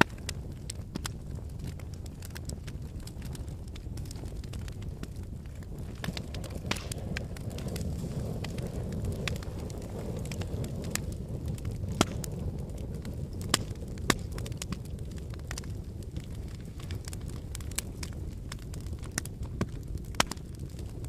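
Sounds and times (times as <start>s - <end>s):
fire crackling in fireplace: 0.0s - 21.0s.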